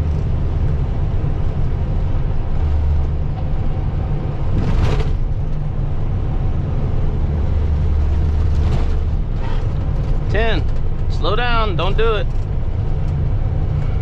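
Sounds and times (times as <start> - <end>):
diesel truck engine droning: 0.0 - 14.0
road noise: 0.0 - 14.0.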